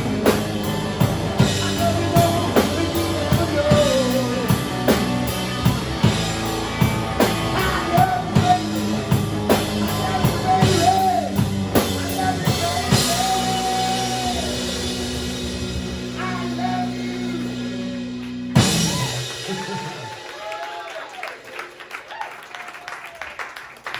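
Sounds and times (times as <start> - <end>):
man singing: 0.0 - 5.0, 7.4 - 15.0, 16.0 - 18.1
live rock band playing: 0.0 - 20.3.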